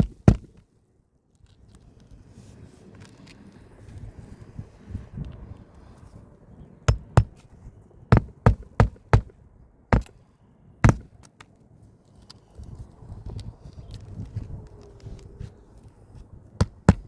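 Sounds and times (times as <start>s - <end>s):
hammer striking nails: 0.0s - 0.6s, 6.9s - 7.4s, 8.1s - 10.2s, 10.8s - 11.2s, 16.6s - 17.0s.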